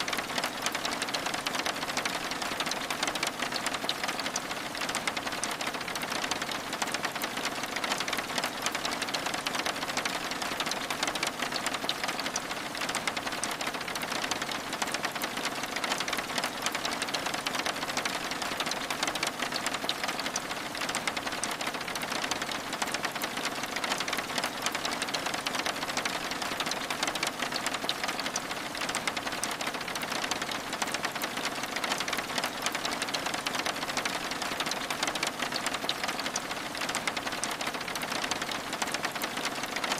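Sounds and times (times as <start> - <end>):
rain on window glass: 0.0 - 39.9.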